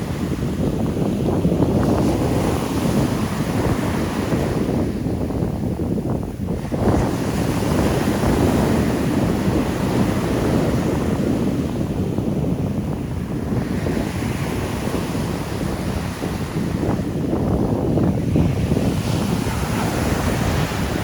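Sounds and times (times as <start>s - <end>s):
wind buffeting microphone: 0.0s - 21.0s
surf breaking: 18.0s - 21.0s.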